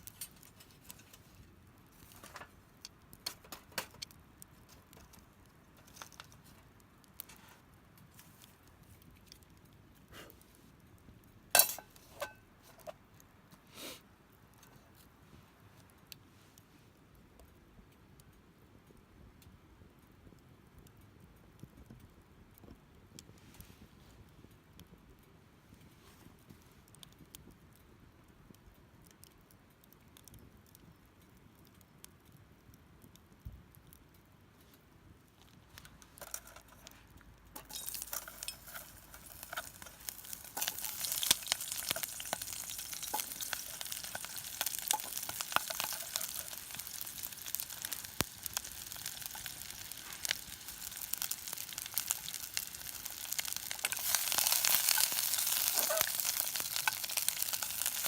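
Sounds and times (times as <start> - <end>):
food sizzling in a pan: 37.6 - 58.0.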